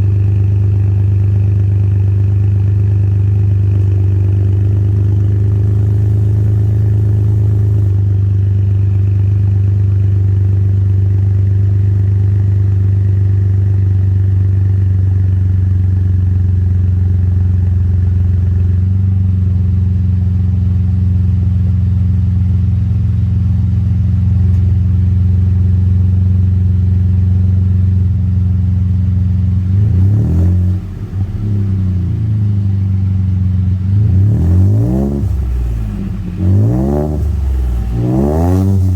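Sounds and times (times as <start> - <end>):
car engine idling: 0.0 - 38.9
engine revving: 3.6 - 8.1, 29.6 - 38.9.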